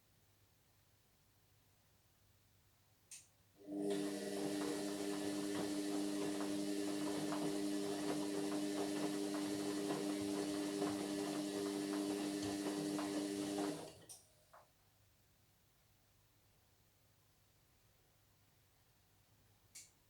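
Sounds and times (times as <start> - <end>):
washing machine humming: 3.6 - 14.2.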